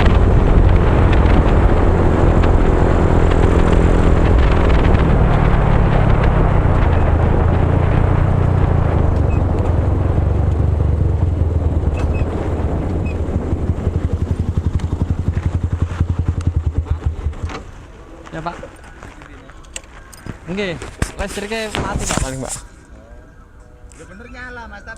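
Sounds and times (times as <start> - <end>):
motorcycle engine revving: 0.0 - 19.2.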